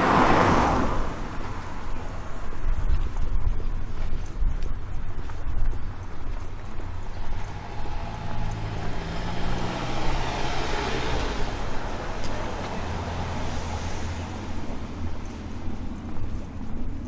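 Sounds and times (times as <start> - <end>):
motor vehicle passing: 0.0 - 2.4, 6.5 - 17.0.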